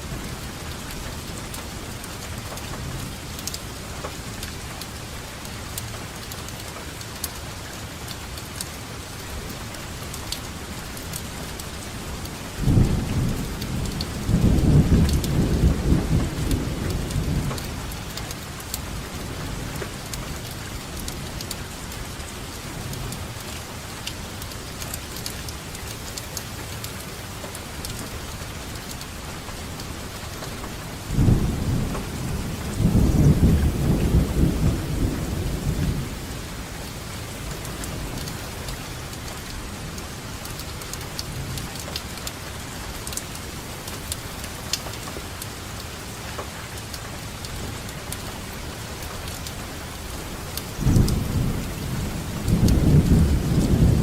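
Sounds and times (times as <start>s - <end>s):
steady rain falling: 0.0s - 54.0s
thunder rumbling: 12.6s - 18.0s, 30.9s - 40.1s, 50.7s - 54.0s.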